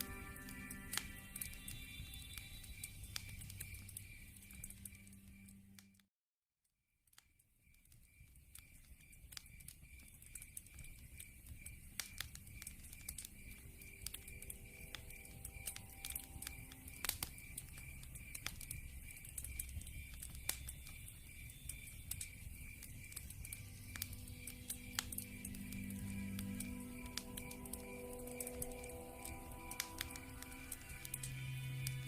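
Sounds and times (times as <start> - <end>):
high chirping: 0.0 - 5.8, 12.7 - 32.0
log fire crackling: 0.0 - 5.9, 7.6 - 32.0.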